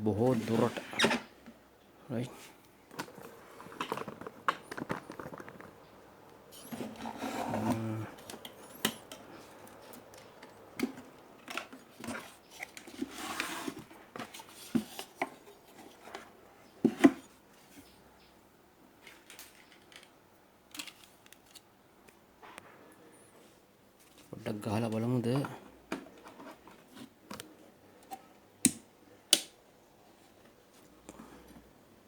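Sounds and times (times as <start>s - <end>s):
tools handled on workbench: 2.9s - 5.9s.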